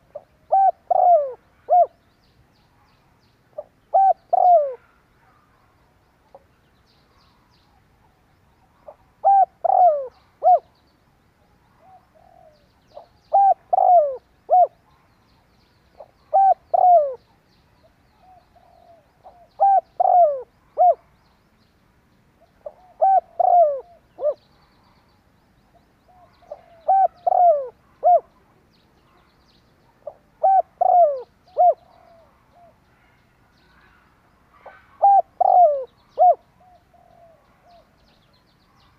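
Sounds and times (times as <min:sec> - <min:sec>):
dove cooing: 0:00.0 - 0:02.0, 0:03.6 - 0:05.4, 0:08.8 - 0:10.7, 0:11.8 - 0:14.8, 0:16.0 - 0:17.4, 0:18.2 - 0:21.1, 0:22.6 - 0:24.5, 0:26.1 - 0:28.5, 0:29.9 - 0:33.1, 0:34.6 - 0:38.3.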